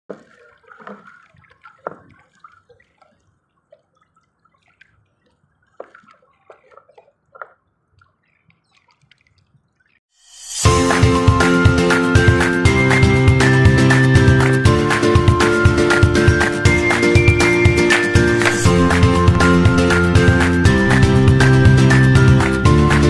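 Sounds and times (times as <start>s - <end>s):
water dripping and splashing: 0.1s - 10.0s, 12.3s - 23.0s
loud background music: 10.6s - 23.0s.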